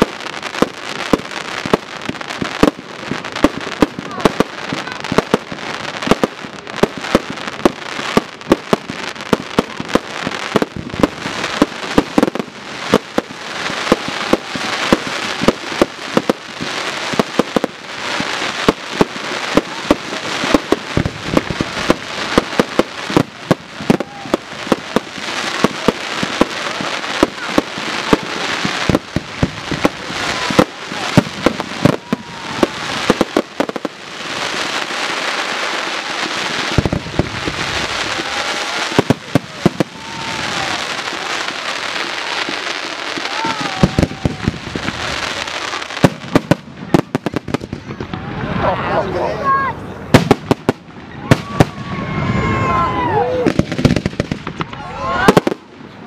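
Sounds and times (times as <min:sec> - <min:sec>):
firework bangs: 0:00.0 - 0:48.9, 0:49.5 - 0:56.0
firework crackle: 0:00.0 - 0:56.0.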